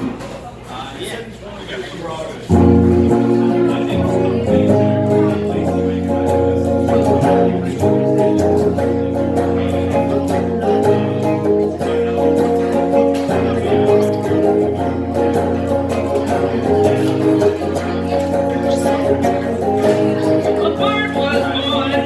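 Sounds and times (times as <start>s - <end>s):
acoustic guitar strumming chords: 2.5s - 22.0s.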